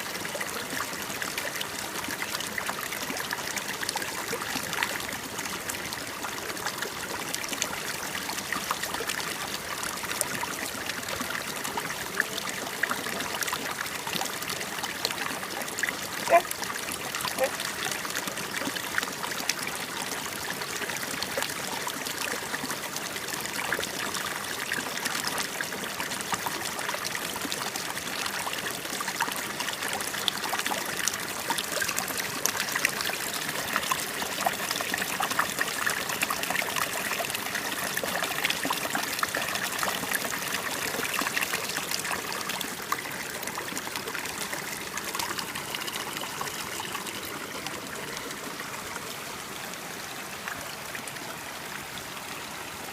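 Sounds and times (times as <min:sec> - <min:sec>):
shallow water trickling: 0:25.8 - 0:48.7.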